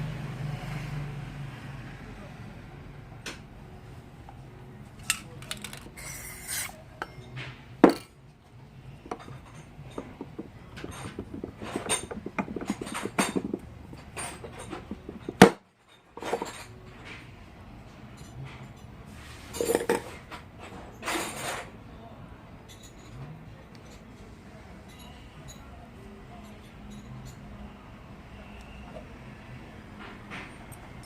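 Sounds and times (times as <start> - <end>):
metal parts clinking and knocking: 5.0 - 8.2, 9.0 - 16.7.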